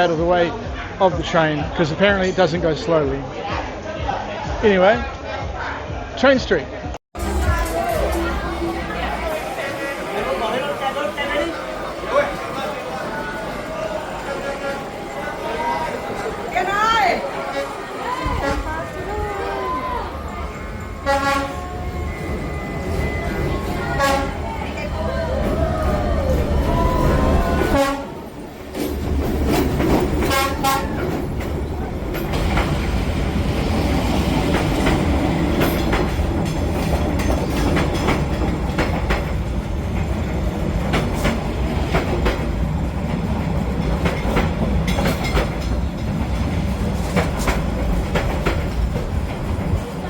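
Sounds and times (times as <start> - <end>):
train rumbling: 7.2 - 50.0
wheels clattering on rails: 7.2 - 50.0
train horn: 14.2 - 15.2, 17.2 - 24.9, 26.7 - 28.3, 30.2 - 31.2.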